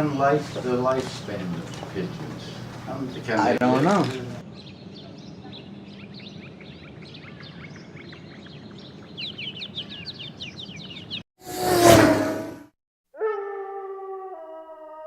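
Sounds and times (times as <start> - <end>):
steady background hum: 0.0 - 4.4
small birds chirping: 0.0 - 11.2.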